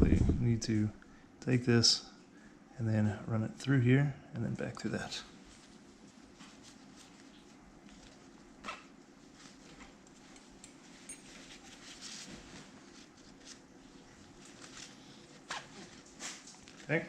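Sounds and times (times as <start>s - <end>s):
strap webbing rustling: 5.4s - 17.0s.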